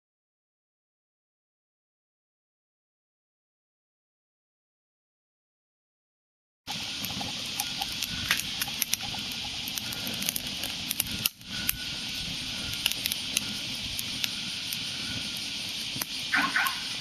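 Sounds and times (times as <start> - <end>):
wood fire crackling: 6.7 - 17.0.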